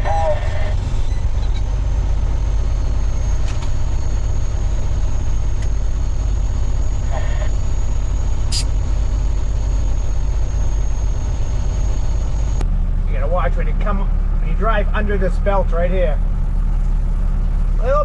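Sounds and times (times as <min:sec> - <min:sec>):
diesel engine rumbling: 0:00.0 - 0:18.0
high whine: 0:08.5 - 0:08.7.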